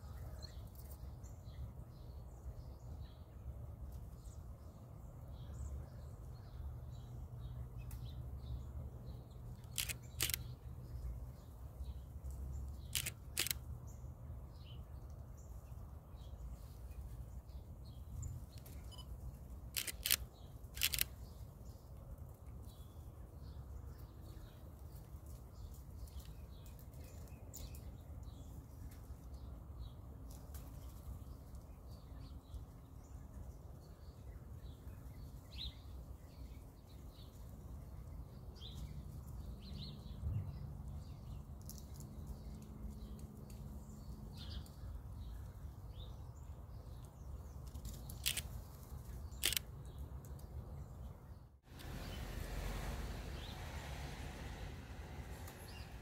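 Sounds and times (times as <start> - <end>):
small birds chirping: 0.0 - 56.0
camera shutter clicks: 9.7 - 10.5, 12.8 - 13.7, 19.7 - 21.2, 48.2 - 48.5, 49.4 - 49.7
low outdoor rumble: 51.7 - 56.0.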